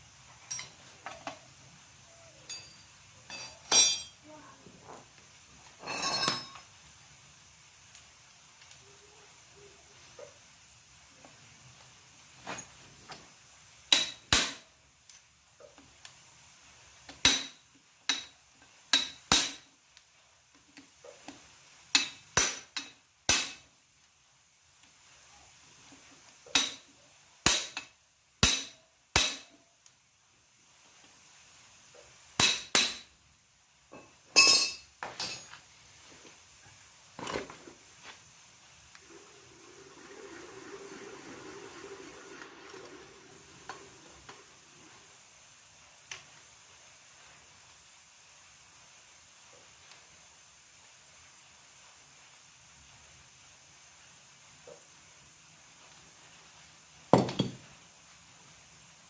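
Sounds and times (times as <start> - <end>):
metal tools clinking on engine parts: 0.4 - 0.9, 2.4 - 4.2, 5.8 - 6.7, 34.4 - 35.6.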